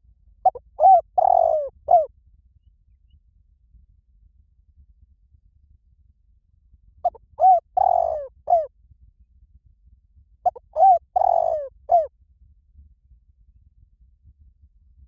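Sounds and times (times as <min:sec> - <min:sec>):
dove cooing: 0:00.4 - 0:02.1, 0:07.0 - 0:08.7, 0:10.5 - 0:12.1.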